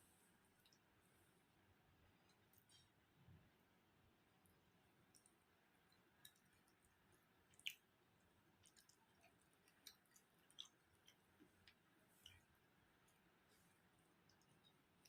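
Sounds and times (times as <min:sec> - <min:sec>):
wet mouth and chewing sounds: 0:05.0 - 0:15.0.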